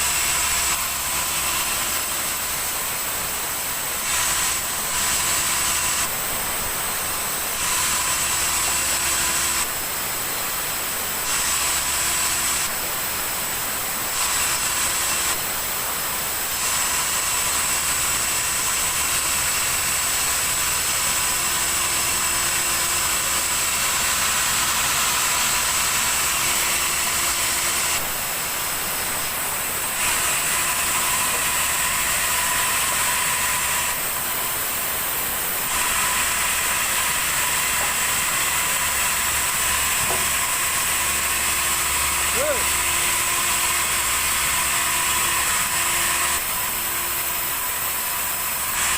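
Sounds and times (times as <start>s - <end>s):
sawmill saw cutting log: 0.0s - 48.9s.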